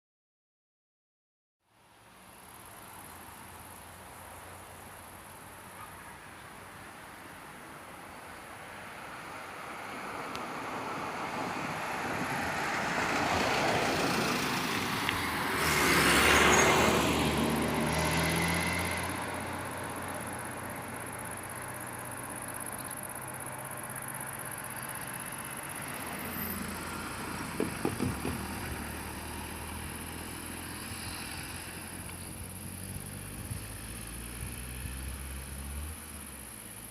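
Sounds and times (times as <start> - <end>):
car driving past: 8.7 - 36.9
short knocks: 27.5 - 28.5.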